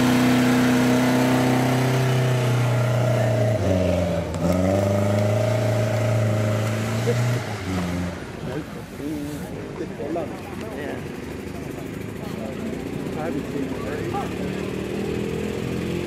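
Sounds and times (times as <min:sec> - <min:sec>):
car engine revving hard: 0:00.0 - 0:08.4, 0:12.8 - 0:16.0.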